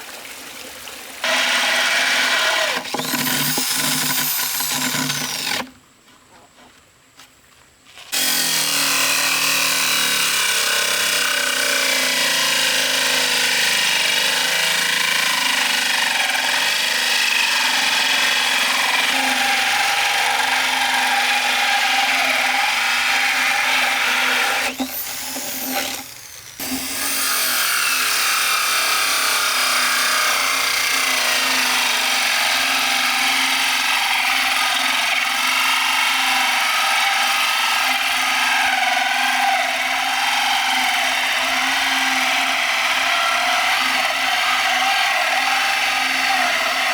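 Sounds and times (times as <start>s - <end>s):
power tool running: 1.2s - 5.7s, 8.1s - 36.6s.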